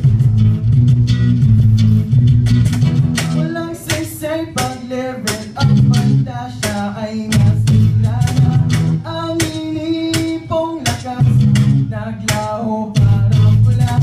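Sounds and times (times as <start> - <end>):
acoustic guitar with bass notes: 0.0 - 14.0
person singing: 3.2 - 14.0.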